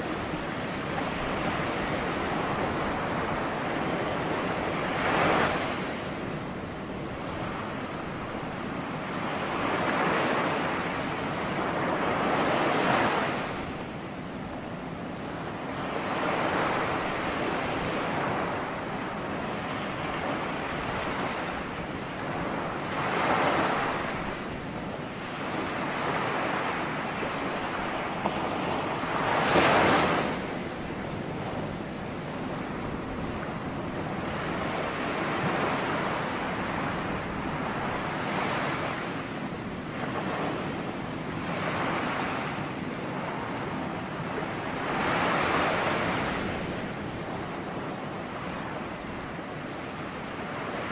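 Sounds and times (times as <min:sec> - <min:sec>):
ocean waves breaking: 0:15.3 - 0:50.9.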